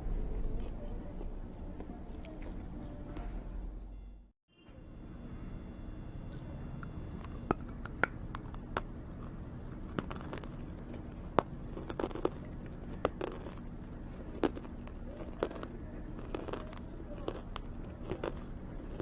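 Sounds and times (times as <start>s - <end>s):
steady low hum: 0.0s - 19.0s
crunchy food being chewed: 6.2s - 19.0s.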